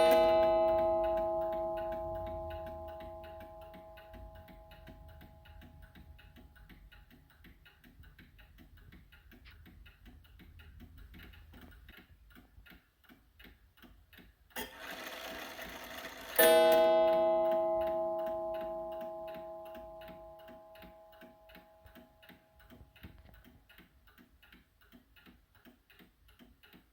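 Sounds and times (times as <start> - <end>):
clock mechanism whirring: 0.0 - 7.1, 14.5 - 22.0
clock striking: 0.0 - 7.1, 14.6 - 22.7
clock ticking: 0.0 - 26.9.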